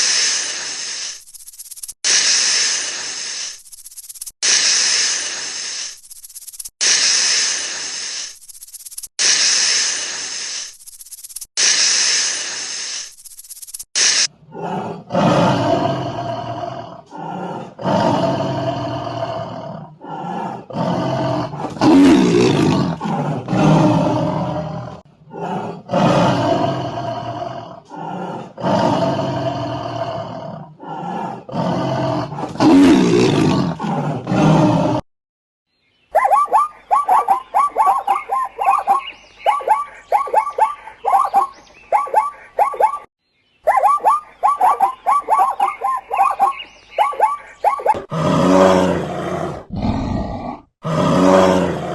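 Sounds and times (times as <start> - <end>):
big cat roaring: 14.4 - 35.0, 48.0 - 51.9.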